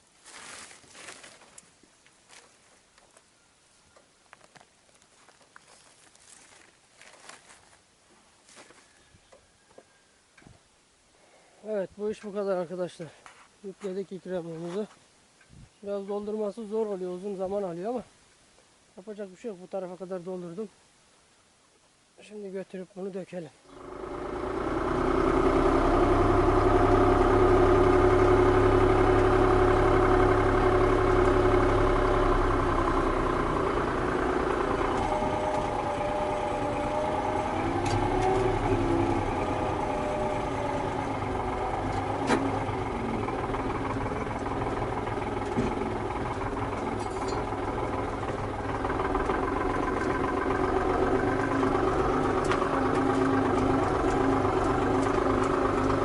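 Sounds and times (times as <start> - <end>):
tractor engine running: 23.7 - 56.0.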